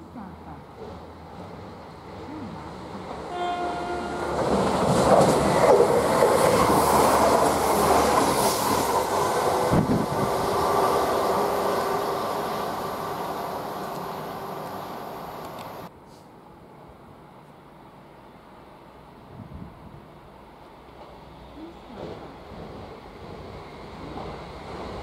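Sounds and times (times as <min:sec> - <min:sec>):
train running past: 0:00.0 - 0:15.9, 0:20.1 - 0:25.0
train horn: 0:03.3 - 0:04.6.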